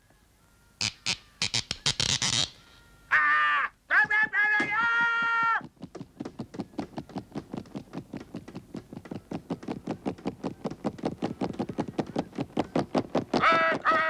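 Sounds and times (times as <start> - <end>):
rapid sharp taps and knocks: 4.0 - 13.4.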